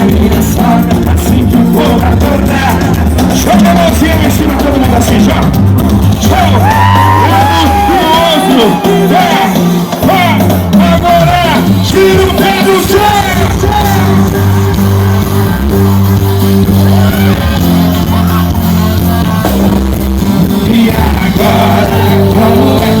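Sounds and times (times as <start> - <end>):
person singing: 0.0 - 15.9, 16.7 - 23.0
live band music: 0.0 - 23.0
crowd shouting: 6.2 - 10.3, 12.1 - 19.9, 20.7 - 23.0.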